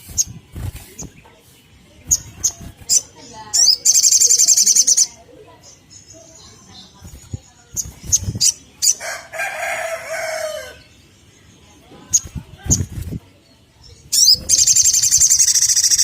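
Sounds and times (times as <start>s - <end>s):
bird chips and trill: 2.1s - 9.0s, 13.9s - 16.0s
rooster crowing: 9.0s - 10.8s.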